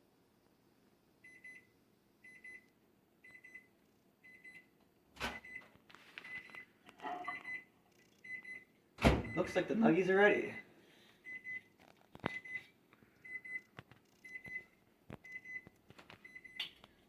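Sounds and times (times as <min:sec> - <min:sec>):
timer alarm beeping: 0:07.2 - 0:08.6.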